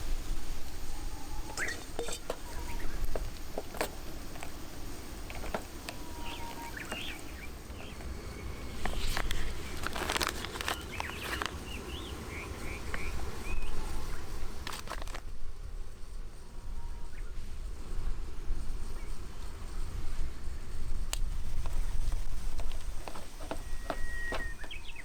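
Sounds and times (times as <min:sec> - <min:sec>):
small birds chirping: 0:00.1 - 0:15.2, 0:18.5 - 0:25.0
sharp clicks and knocks: 0:01.6 - 0:08.1.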